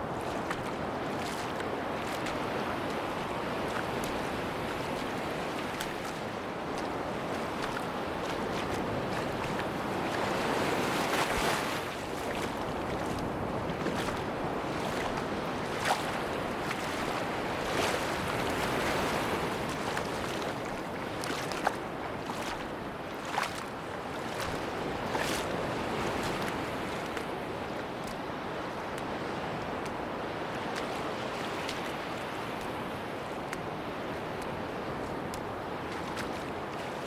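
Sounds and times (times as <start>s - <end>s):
sea waves washing onto beach: 0.0s - 37.0s
wind: 0.0s - 37.0s.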